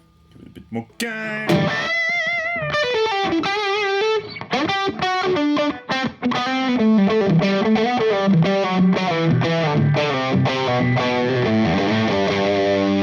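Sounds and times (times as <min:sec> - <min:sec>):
overdriven electric guitar: 0:01.2 - 0:13.0.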